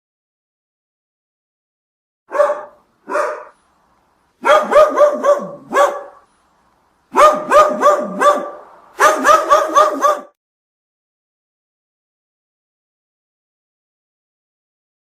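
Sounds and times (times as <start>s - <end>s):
small dog barking: 2.3s - 3.6s, 4.4s - 6.3s, 7.1s - 10.4s.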